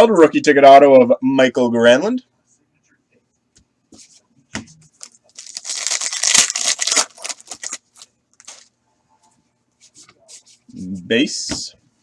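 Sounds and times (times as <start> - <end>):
plastic wrapping rustling: 4.9 - 8.7.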